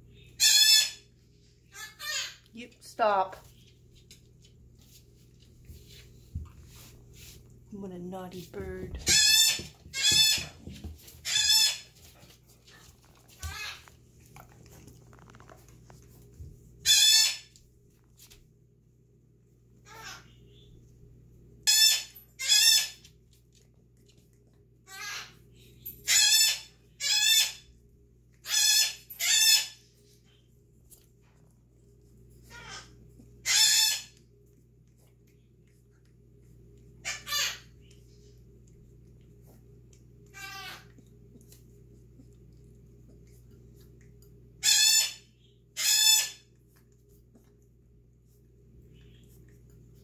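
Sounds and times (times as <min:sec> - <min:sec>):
pet bird squawking: 0:00.3 - 0:01.0, 0:01.7 - 0:02.4, 0:11.2 - 0:11.9, 0:16.8 - 0:17.5, 0:19.9 - 0:20.4, 0:21.7 - 0:23.0, 0:24.9 - 0:25.4, 0:26.1 - 0:27.6, 0:28.4 - 0:29.8, 0:32.5 - 0:34.2, 0:37.0 - 0:37.7, 0:40.4 - 0:40.9, 0:44.6 - 0:46.5
parrot yelling harsh calls: 0:00.4 - 0:01.0, 0:01.7 - 0:02.4, 0:16.8 - 0:17.5, 0:21.7 - 0:23.0, 0:24.9 - 0:25.3, 0:26.1 - 0:27.6, 0:28.4 - 0:29.8, 0:32.5 - 0:34.2, 0:37.0 - 0:37.6, 0:40.4 - 0:40.8, 0:44.6 - 0:45.2, 0:45.8 - 0:46.4.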